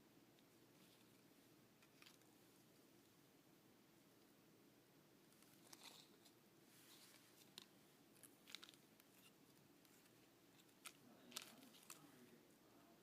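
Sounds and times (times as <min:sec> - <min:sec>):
faint clicks and rustles: 0:05.3 - 0:12.4.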